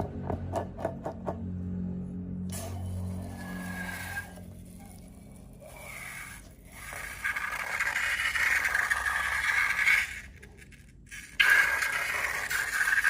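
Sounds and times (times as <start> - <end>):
slime crackling scrape: 3.3 - 13.0.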